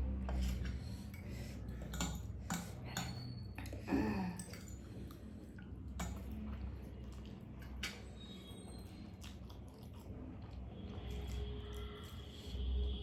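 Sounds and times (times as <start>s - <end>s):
utensils clinking against a dish: 0.2s - 5.3s.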